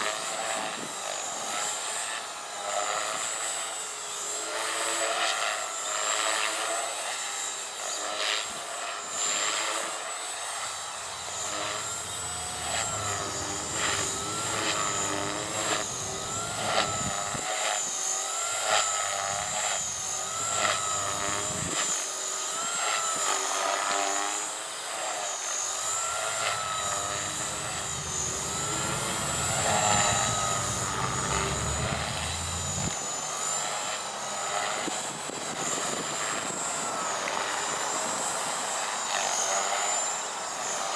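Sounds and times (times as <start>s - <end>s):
rc helicopter motor whine: 0.0s - 40.9s
wind rumble on microphone: 11.3s - 17.4s, 26.3s - 33.0s.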